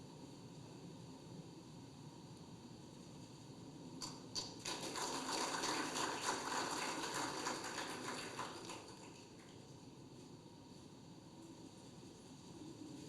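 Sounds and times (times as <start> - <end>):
people applauding: 4.0 - 9.7.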